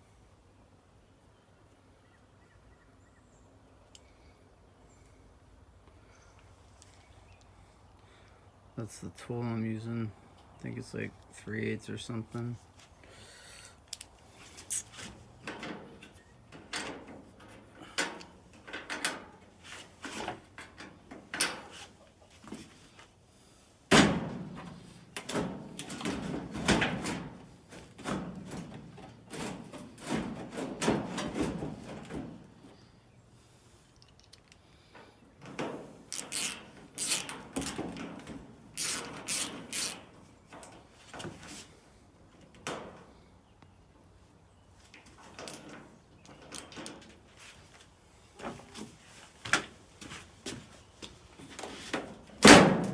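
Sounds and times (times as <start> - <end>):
metal rattling and scraping: 23.9 - 32.8, 35.4 - 41.6.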